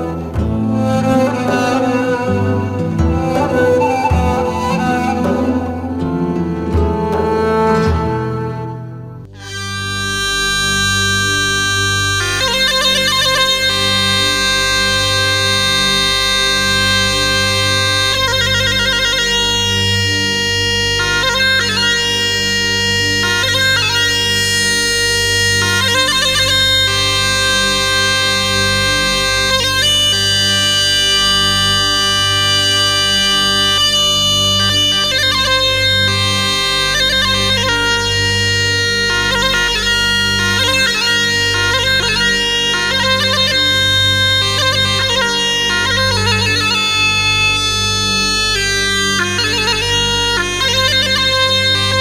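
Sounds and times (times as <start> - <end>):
bagpipe music: 0.0 - 52.0.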